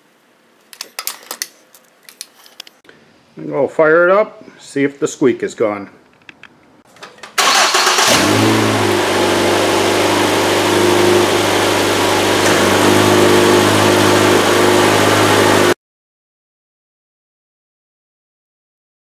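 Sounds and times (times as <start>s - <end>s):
car engine starting and idling: 7.4s - 15.8s.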